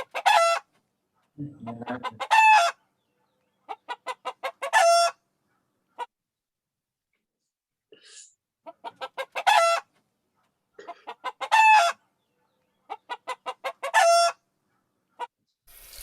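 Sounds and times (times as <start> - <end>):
hen cackling: 1.5 - 2.8, 3.7 - 5.2, 8.6 - 9.9, 10.8 - 12.0, 12.9 - 14.5.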